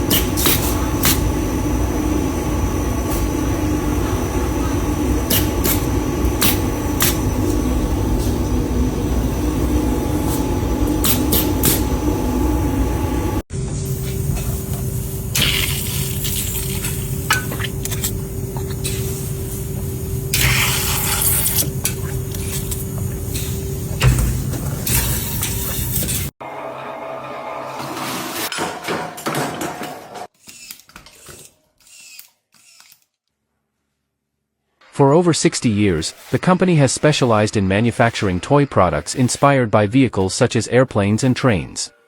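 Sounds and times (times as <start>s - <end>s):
factory machinery humming: 0.0s - 30.3s.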